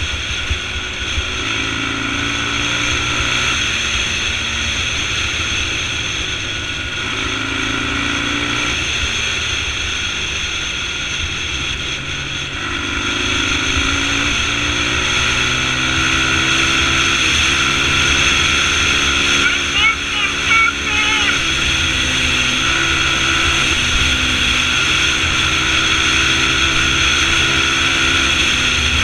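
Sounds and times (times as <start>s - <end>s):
dirt bike engine running: 0.0s - 29.0s.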